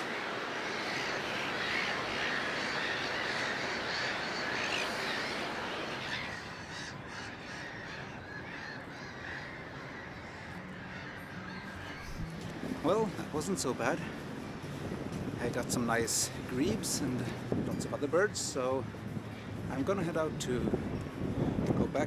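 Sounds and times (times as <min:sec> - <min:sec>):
chorus of birds calling: 0:00.0 - 0:14.0.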